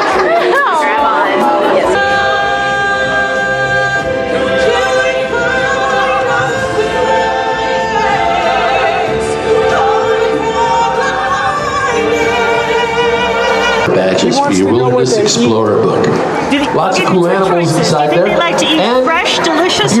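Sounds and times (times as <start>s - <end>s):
choir singing held notes: 0.0s - 20.0s.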